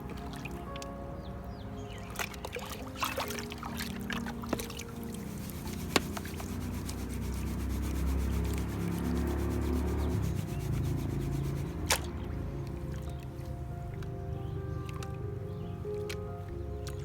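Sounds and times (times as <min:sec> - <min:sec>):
background music: 0:00.0 - 0:17.0
gravel scraping in a pan: 0:05.2 - 0:11.9.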